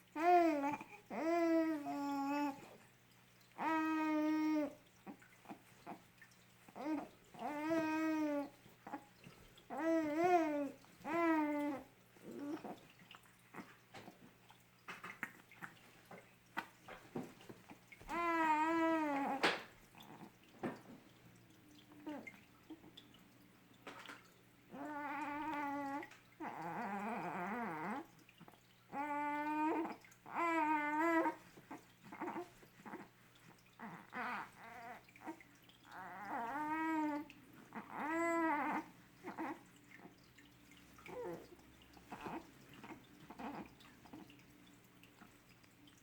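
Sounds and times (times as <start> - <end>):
baby cooing: 0.2 - 2.8, 6.8 - 9.0, 9.7 - 12.8, 18.1 - 20.3, 24.7 - 28.0.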